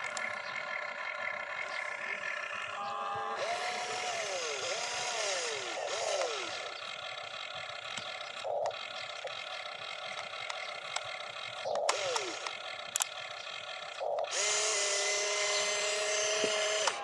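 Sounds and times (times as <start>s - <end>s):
small electric motors whining: 0.0s - 17.0s.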